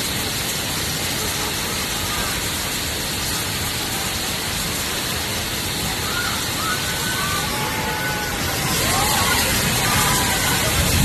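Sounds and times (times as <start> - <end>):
steady rushing noise: 0.0 - 11.0
faint whistle-like tones: 5.7 - 10.8.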